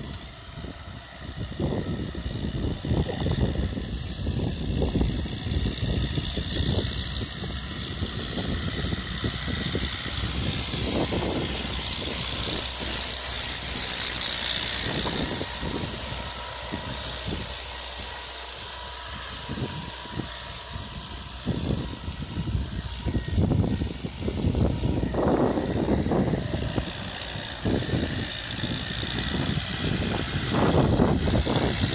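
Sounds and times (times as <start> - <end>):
tractor diesel engine running: 0.0 - 31.9
hiss: 8.5 - 23.0.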